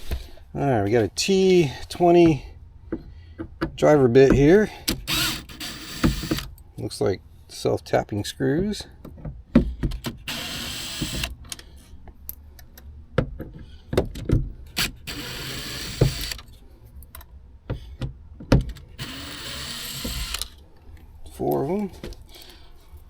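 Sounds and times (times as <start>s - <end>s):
cordless drill spinning: 4.9s - 6.5s, 10.0s - 11.5s, 14.7s - 16.5s, 18.7s - 20.6s
clicks and knocks of screws: 14.0s - 17.3s, 18.5s - 20.6s.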